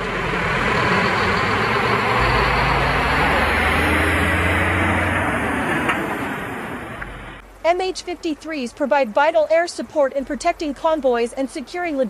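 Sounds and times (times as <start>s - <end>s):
large vehicle engines roaring: 0.0s - 7.4s
low steady hum: 6.7s - 12.0s.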